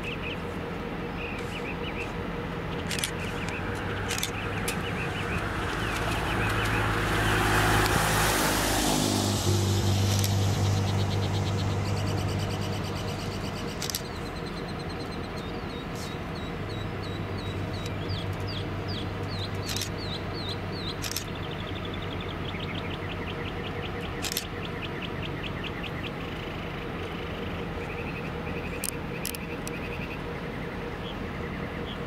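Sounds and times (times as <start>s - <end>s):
diesel locomotive idling: 0.0s - 7.1s, 9.3s - 32.0s
songbirds chirping and trilling: 0.0s - 32.0s
sharp clicks: 2.7s - 6.8s, 10.1s - 10.4s, 13.7s - 14.2s, 19.2s - 20.1s, 20.9s - 21.3s, 24.2s - 24.5s, 28.8s - 29.8s.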